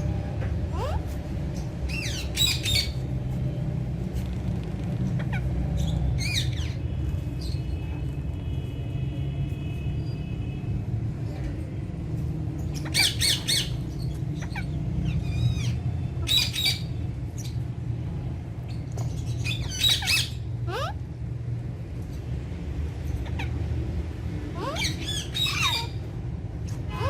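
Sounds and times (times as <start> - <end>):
parakeets squawking: 0.7 - 3.1, 5.1 - 7.7, 12.6 - 17.6, 18.7 - 21.1, 24.5 - 26.1, 26.7 - 27.0.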